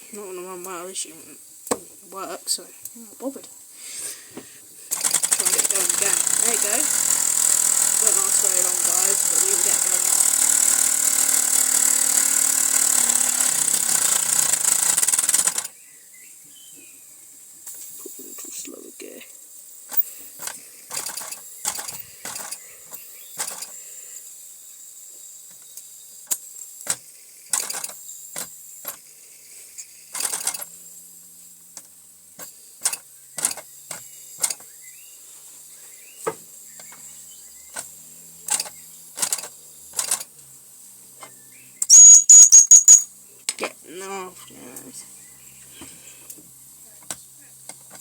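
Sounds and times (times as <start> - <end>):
steam hissing: 3.7 - 5.3
gears clicking and knocking: 4.9 - 15.7, 19.9 - 23.8, 26.3 - 29.0, 30.1 - 30.7, 31.8 - 34.6, 37.7 - 40.3, 41.9 - 43.1.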